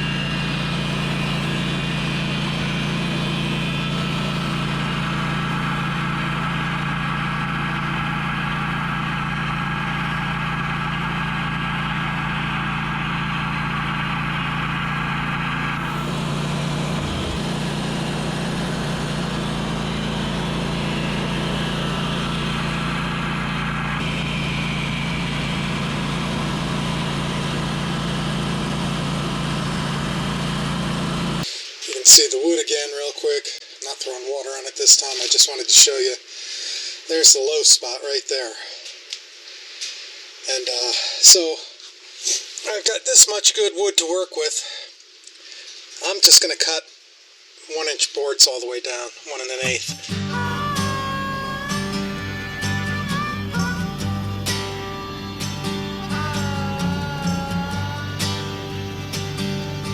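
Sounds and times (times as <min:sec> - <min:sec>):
sawmill engine running: 0:00.0 - 0:31.5, 0:49.6 - 0:59.9.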